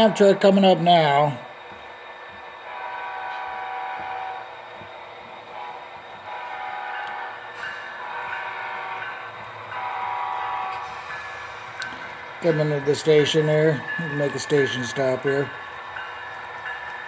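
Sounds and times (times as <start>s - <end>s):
model locomotive horn blasts: 2.8s - 4.4s, 5.6s - 11.8s.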